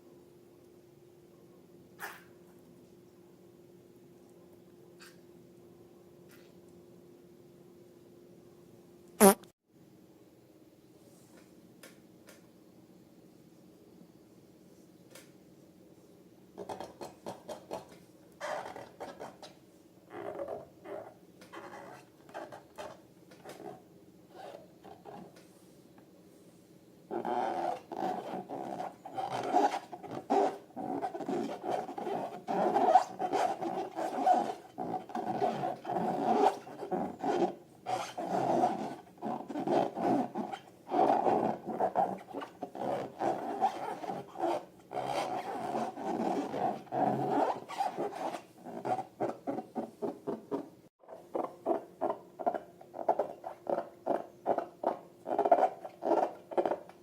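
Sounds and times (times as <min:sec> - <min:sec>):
rubbery squeaks and squelches: 0:09.2 - 0:09.4, 0:18.4 - 0:19.5, 0:20.1 - 0:25.2, 0:27.1 - 0:57.0.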